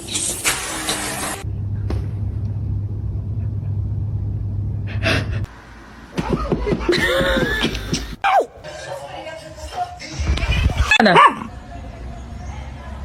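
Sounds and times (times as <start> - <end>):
steady low rumble: 1.4 - 6.0.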